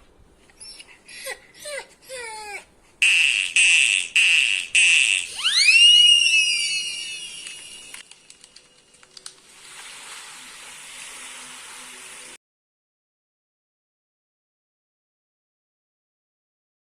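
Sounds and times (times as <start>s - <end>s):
rising electronic tone: 3.1s - 8.0s
steady hiss: 7.2s - 12.4s.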